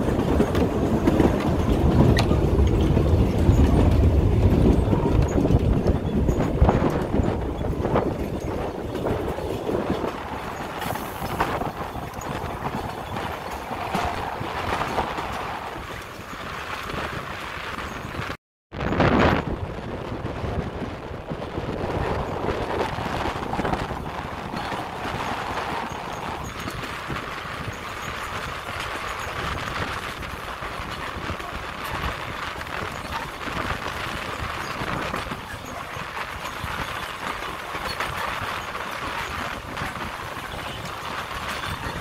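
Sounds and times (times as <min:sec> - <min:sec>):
train carriage rumbling and rattling: 0:00.0 - 0:42.0.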